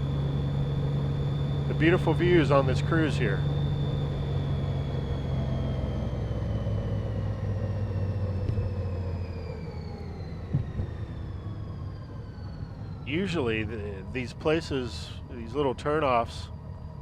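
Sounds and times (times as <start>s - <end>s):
motorcycle engine slowing: 0.0s - 11.9s.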